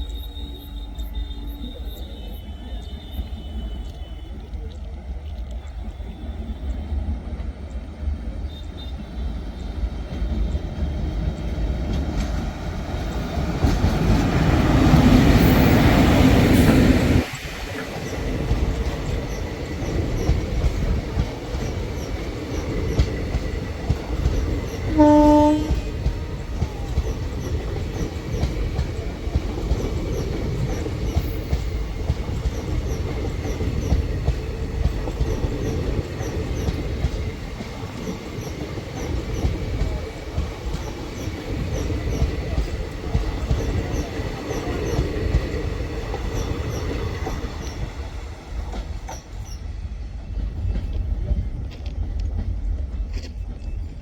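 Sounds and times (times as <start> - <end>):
train horn blast: 0.0 - 4.6, 24.8 - 26.1
train wheels rumbling: 0.0 - 54.0.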